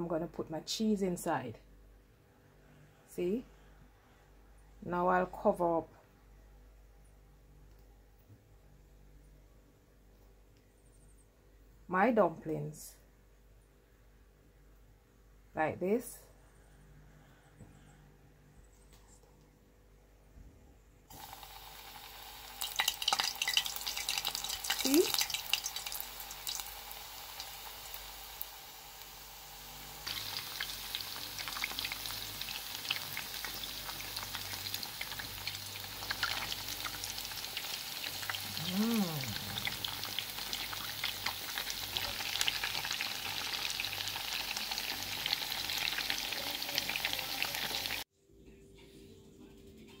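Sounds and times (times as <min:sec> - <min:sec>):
dumplings sizzling in hot oil: 0:21.1 - 0:48.1
oil spattering crackles: 0:22.6 - 0:28.5.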